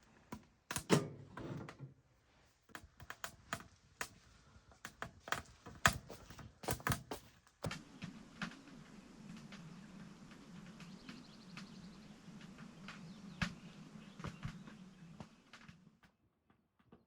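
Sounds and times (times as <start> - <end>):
knocks and clicks of handled objects: 2.6 - 7.8.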